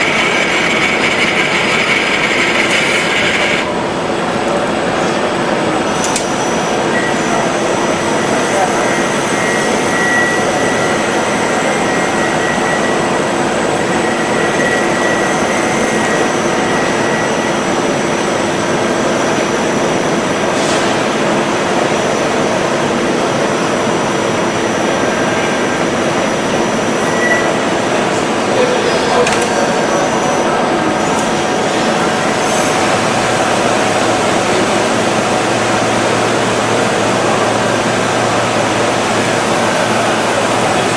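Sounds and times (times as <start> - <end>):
milling machine running: 0.0 - 40.9.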